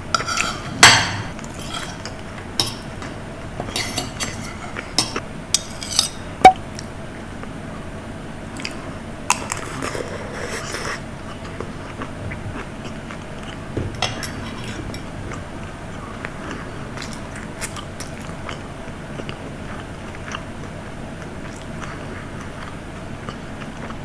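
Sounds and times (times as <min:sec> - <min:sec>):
steady low hum: 0:11.0 - 0:23.6.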